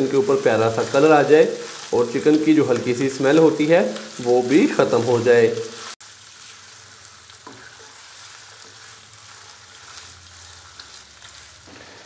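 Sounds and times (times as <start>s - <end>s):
chicken sizzling in hot oil: 0.0s - 12.0s
spatula scraping pan: 7.3s - 12.0s.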